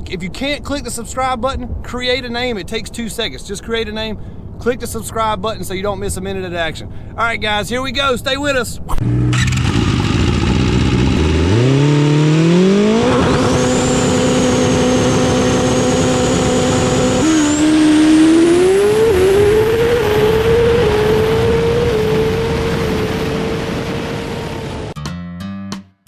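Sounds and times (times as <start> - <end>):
motorcycle engine accelerating hard: 9.0 - 25.0.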